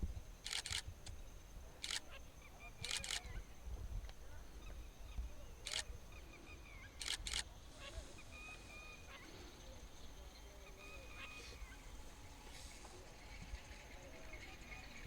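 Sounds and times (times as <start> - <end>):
camera shutter clicking: 0.5 - 0.9, 7.0 - 7.4.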